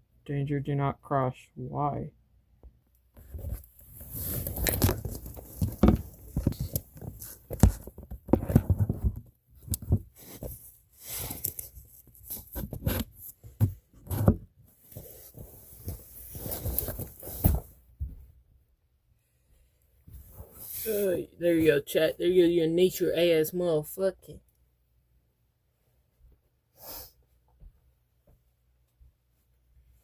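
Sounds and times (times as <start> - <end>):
rustling and scraping: 3.2 - 17.8.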